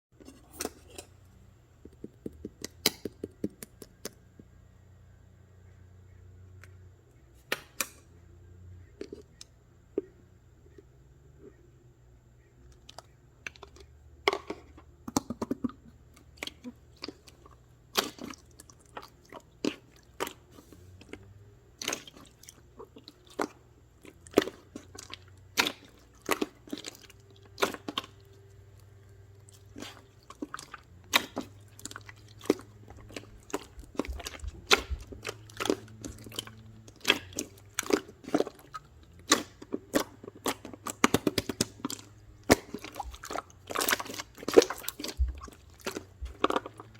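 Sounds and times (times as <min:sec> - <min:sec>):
crunchy chewing: 0:14.5 - 0:46.9.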